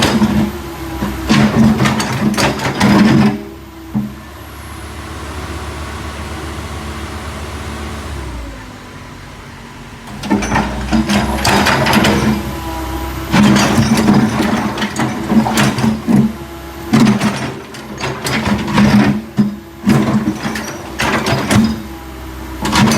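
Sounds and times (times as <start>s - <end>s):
loud knocks and clanks: 0.0s - 4.2s, 10.1s - 12.7s, 13.3s - 22.0s, 22.6s - 22.9s
backhoe engine running: 0.0s - 22.9s.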